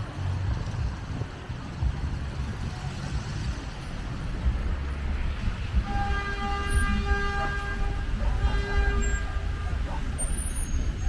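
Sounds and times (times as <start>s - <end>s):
city traffic rumble: 0.0s - 11.0s
vehicle horn steady tone: 5.2s - 11.0s.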